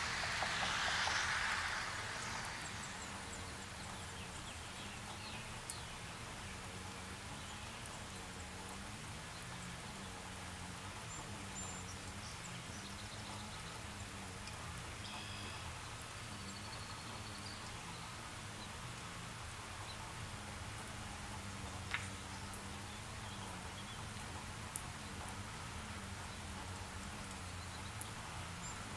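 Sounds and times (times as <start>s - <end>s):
low wavering hum: 0.0s - 5.3s
light rain hissing: 0.0s - 28.9s
faint high bird-like chirps: 15.0s - 15.7s.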